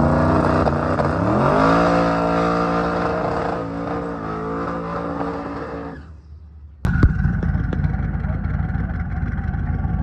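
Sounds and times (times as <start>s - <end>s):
race car engine at full throttle: 0.0s - 6.1s.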